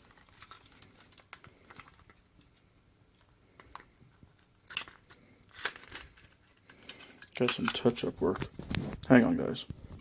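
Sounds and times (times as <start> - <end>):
plastic clatter: 3.2 - 9.1
plastic model railcar clicking: 4.7 - 8.1.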